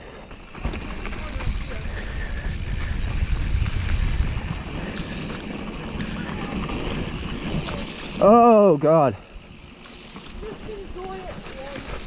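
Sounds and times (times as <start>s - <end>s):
bike tyre rumble: 0.0s - 12.0s
bike clicks and knocks: 0.3s - 2.1s
wind rush on microphone: 0.4s - 8.4s.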